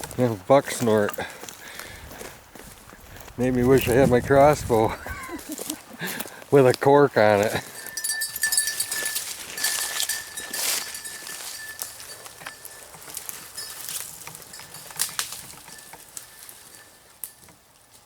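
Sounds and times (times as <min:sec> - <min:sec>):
footsteps through dry leaves: 0:00.8 - 0:06.5, 0:07.2 - 0:16.9
light metallic clinking: 0:07.6 - 0:17.6.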